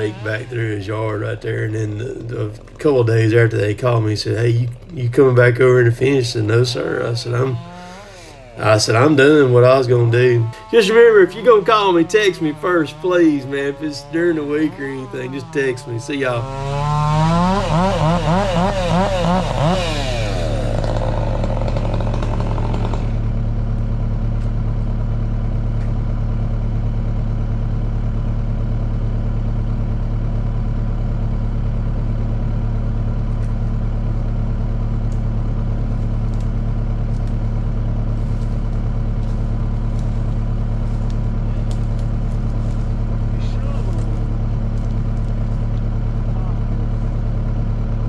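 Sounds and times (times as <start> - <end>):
engine idling: 0.0 - 48.0
higher machine sound: 4.6 - 23.3.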